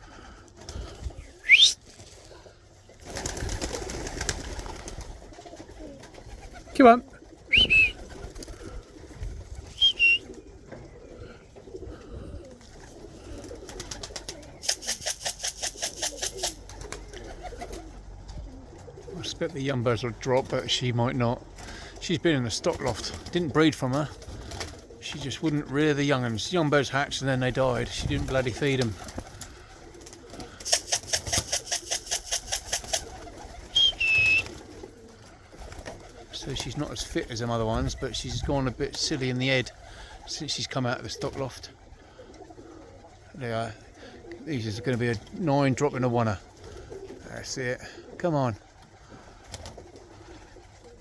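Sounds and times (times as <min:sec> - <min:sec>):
pigeons cooing: 0:00.0 - 0:51.0
wingbeats fluttering: 0:00.1 - 0:11.1, 0:11.7 - 0:19.2, 0:22.6 - 0:40.5, 0:46.3 - 0:47.4, 0:48.0 - 0:51.0
high whistle: 0:01.4 - 0:01.8, 0:07.5 - 0:08.0, 0:09.8 - 0:10.3, 0:33.8 - 0:34.5
long steady whistle: 0:01.4 - 0:01.8, 0:09.8 - 0:10.3, 0:33.8 - 0:34.4.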